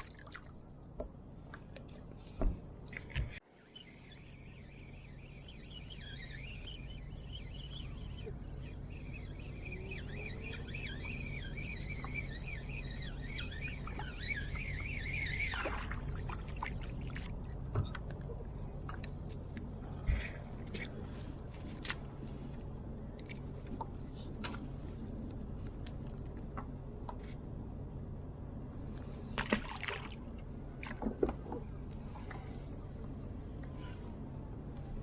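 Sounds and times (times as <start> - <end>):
low steady rumble: 0.0 - 35.0
birds chirping: 2.9 - 17.6.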